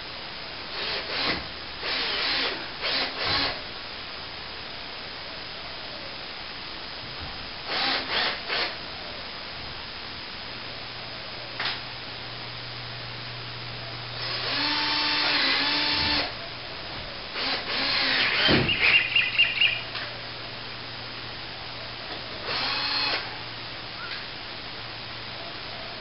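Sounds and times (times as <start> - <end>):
power drill driving screws: 0.8 - 3.6, 7.7 - 8.7, 14.2 - 16.3, 17.4 - 18.9, 22.4 - 23.2.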